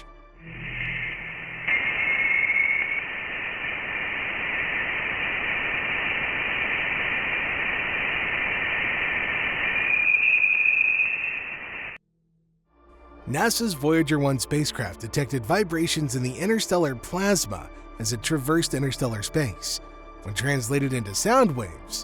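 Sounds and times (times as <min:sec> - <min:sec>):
high whistle: 0:00.0 - 0:03.9, 0:08.4 - 0:12.0
static-like hiss: 0:00.8 - 0:12.0.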